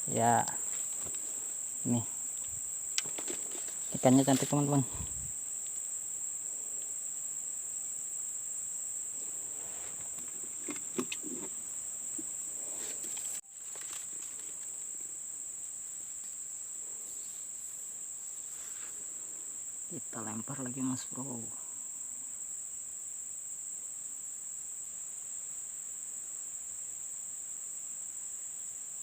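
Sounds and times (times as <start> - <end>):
insects chirring: 0.0 - 29.0
faint rustling: 0.4 - 5.4, 9.2 - 15.0.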